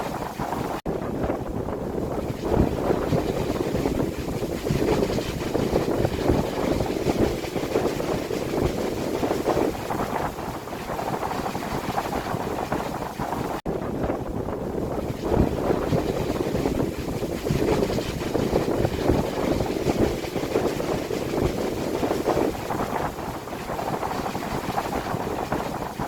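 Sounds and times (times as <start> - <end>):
gusty wind buffeting microphone: 0.0 - 26.0.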